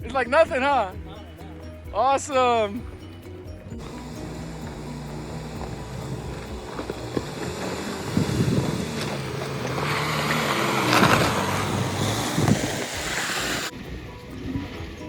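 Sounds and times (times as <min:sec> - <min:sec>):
off-road vehicle engine under load: 0:00.0 - 0:15.0
rough crunching on rocks: 0:03.8 - 0:13.7.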